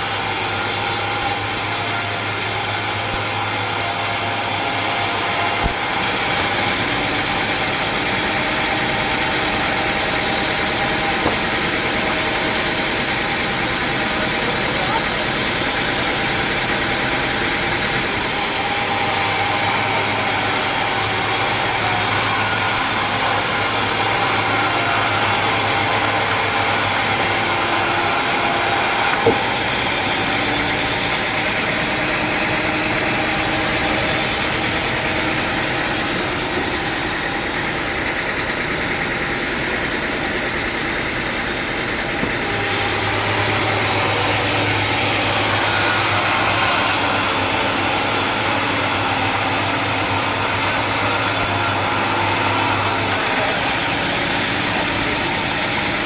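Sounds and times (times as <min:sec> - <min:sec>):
sawmill machinery running: 0:00.0 - 0:56.0
sharp knock: 0:11.2 - 0:11.9, 0:29.1 - 0:29.6.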